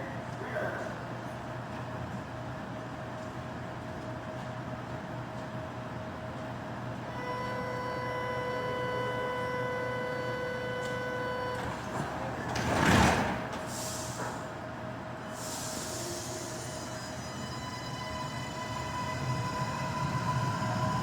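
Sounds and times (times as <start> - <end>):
electric whine of train: 1.1 - 21.0
train humming: 6.4 - 12.6, 13.2 - 21.0.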